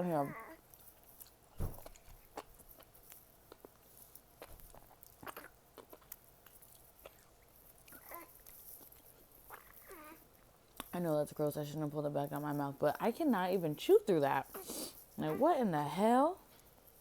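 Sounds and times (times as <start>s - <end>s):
wet chewing and mouth clicks: 0.3s - 11.1s.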